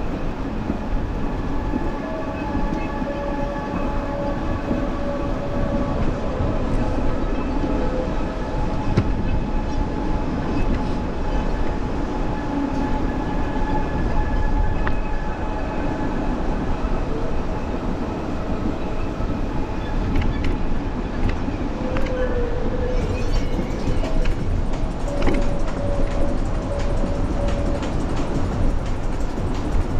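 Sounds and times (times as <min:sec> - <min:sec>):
scattered clicks: 0:23.6 - 0:29.9.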